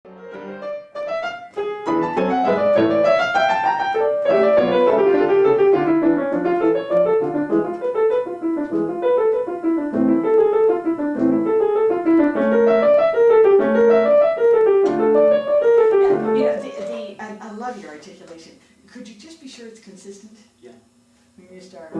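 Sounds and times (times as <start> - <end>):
piano playing quick notes: 0.2 - 17.1
teacher speaking: 16.0 - 20.5.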